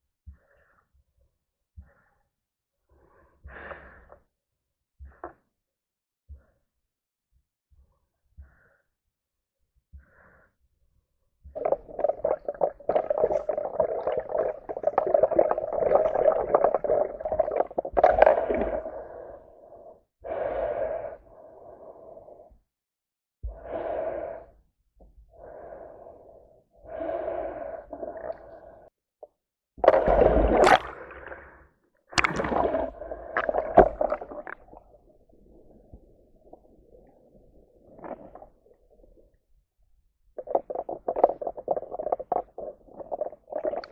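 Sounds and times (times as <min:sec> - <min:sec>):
water noise: 0:11.6 - 0:19.4, 0:29.8 - 0:39.3, 0:40.4 - 0:43.9
heavy breathing through a snorkel: 0:11.8 - 0:22.6, 0:25.3 - 0:28.9.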